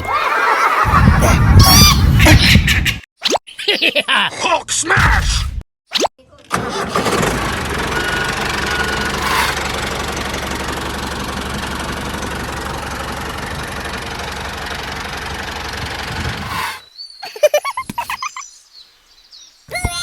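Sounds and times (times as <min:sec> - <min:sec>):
engine running with low hum: 0:06.5 - 0:16.7.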